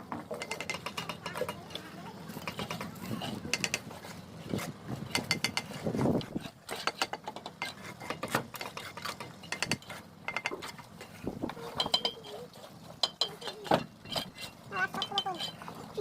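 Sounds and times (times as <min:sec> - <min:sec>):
trowel clinking on bricks: 0:00.0 - 0:16.0
trowel scraping mortar: 0:00.4 - 0:16.0.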